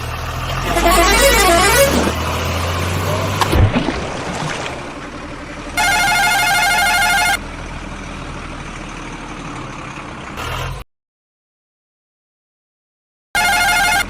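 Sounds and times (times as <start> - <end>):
electronic toy warbling beeps: 0.6 - 2.2, 5.8 - 7.4, 13.4 - 14.0.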